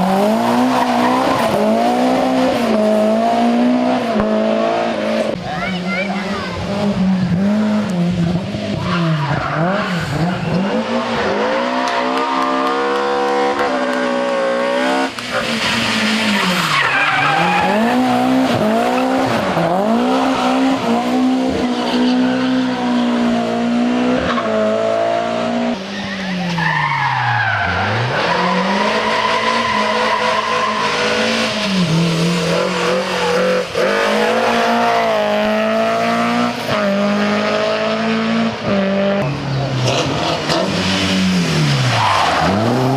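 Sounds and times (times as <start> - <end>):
rally car engine revving: 0.0 - 42.9
tyres squealing: 15.3 - 20.8.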